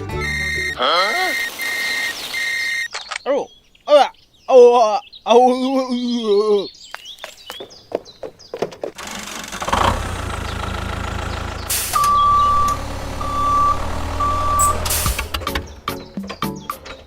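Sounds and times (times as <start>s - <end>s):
reversing alarm beeps: 0.2s - 2.9s, 11.9s - 15.4s
truck engine running: 9.0s - 16.1s
air hiss: 11.7s - 12.1s, 14.6s - 15.4s.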